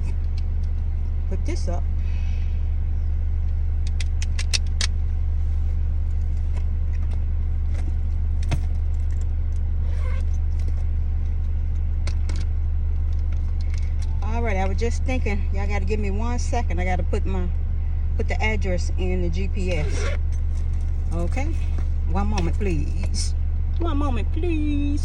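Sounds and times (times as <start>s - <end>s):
car engine idling: 0.0s - 25.0s
light clicks and rattles: 10.4s - 14.8s.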